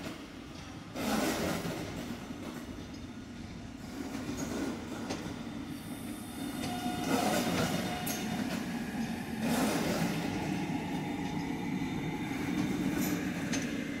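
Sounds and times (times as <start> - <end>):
electric train rolling past: 0.2 - 14.0.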